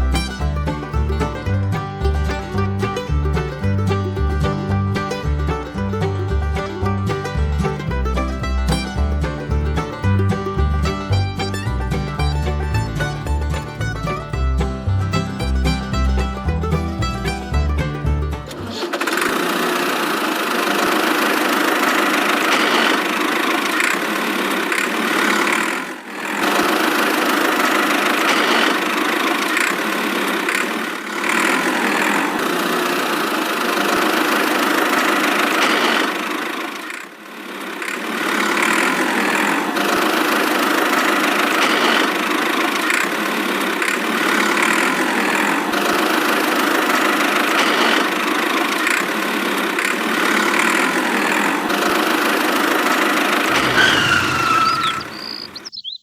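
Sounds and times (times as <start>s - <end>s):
small motor droning: 47.5s - 55.6s.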